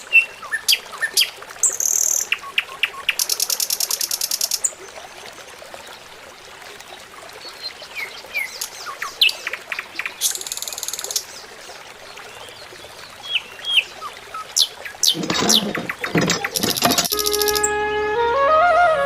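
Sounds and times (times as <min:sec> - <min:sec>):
birds chirping: 0:12.2 - 0:17.7
fast buzzy bird trill: 0:15.0 - 0:17.7.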